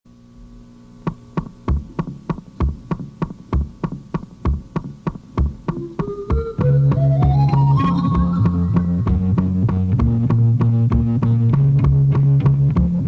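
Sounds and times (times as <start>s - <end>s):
drum kit playing a beat: 1.0s - 13.0s
rising run of notes: 5.7s - 10.1s
rock band playing loud: 5.7s - 12.0s.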